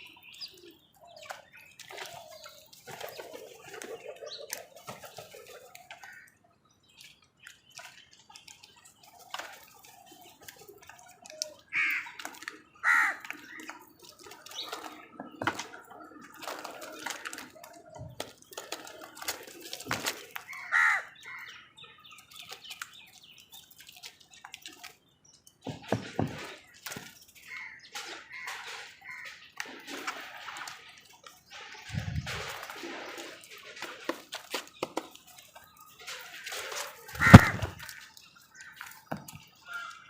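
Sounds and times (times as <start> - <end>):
crows cawing: 11.7 - 13.7, 20.4 - 21.5, 37.2 - 39.0, 39.6 - 40.0.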